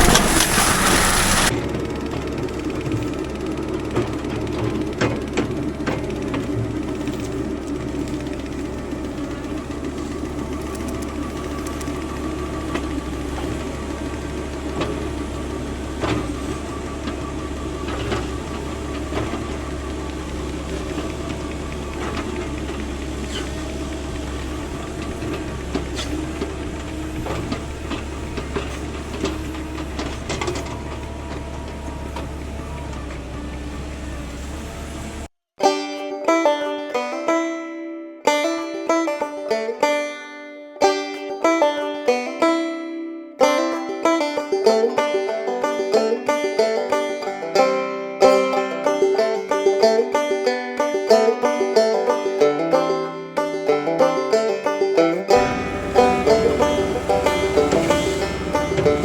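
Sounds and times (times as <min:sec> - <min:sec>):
excavator diesel engine running: 0:00.0 - 0:35.3, 0:55.3 - 0:59.0.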